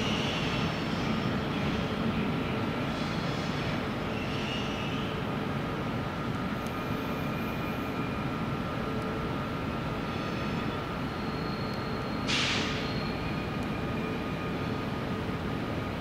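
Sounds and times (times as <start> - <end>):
electric train rumbling: 0.0 - 16.0
sharp air hiss: 12.3 - 12.9.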